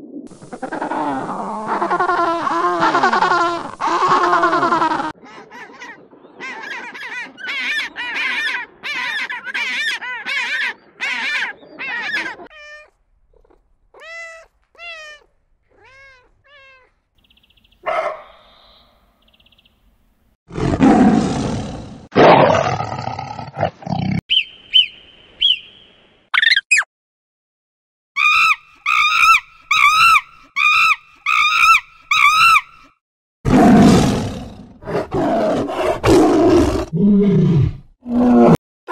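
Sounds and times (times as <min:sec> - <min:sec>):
lion roaring: 0:20.5 - 0:24.0, 0:33.5 - 0:38.6.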